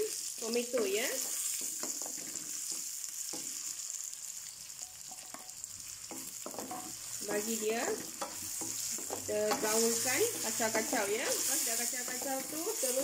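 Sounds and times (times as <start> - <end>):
onions sizzling in hot oil: 0.0 - 13.0
wooden spatula scraping a wok: 0.8 - 3.5, 6.0 - 13.0.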